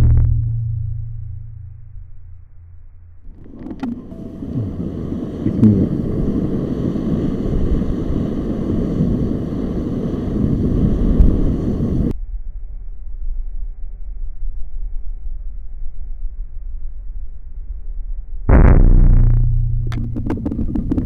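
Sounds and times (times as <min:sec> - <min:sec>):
faint low hum: 0:00.0 - 0:09.2
wind buffeting microphone: 0:03.3 - 0:12.1.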